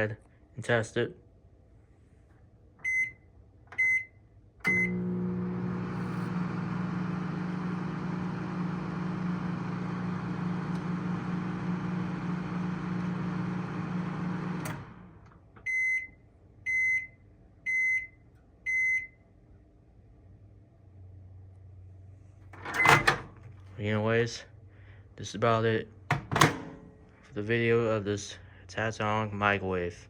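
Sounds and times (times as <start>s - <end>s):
microwave oven humming: 2.8s - 19.3s
microwave switching off click: 4.6s - 15.4s.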